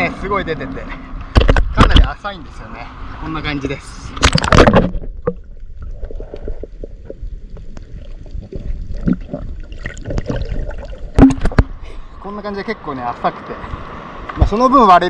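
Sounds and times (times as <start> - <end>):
water splash: 4.1 - 7.2, 7.8 - 11.8.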